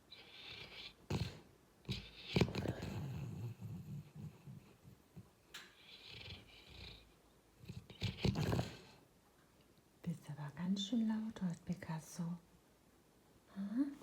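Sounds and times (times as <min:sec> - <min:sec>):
dog snoring: 0:00.1 - 0:05.0, 0:05.7 - 0:09.0.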